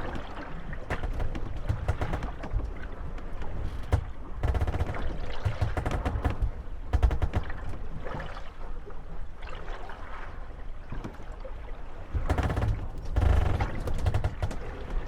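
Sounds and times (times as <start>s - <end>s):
boat creaking: 0.0s - 8.5s, 12.0s - 15.0s
water lapping against boats: 0.0s - 15.0s
wooden hulls knocking together: 0.1s - 7.9s, 12.2s - 15.0s.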